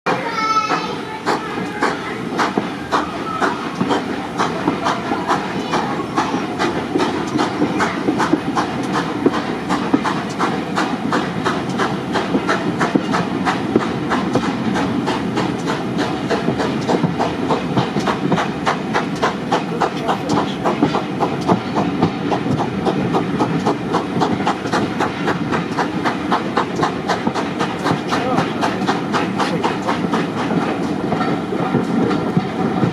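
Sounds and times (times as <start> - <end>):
train rumble and hiss: 0.1 - 32.9
train wheels clicking over rail joints: 0.1 - 32.9.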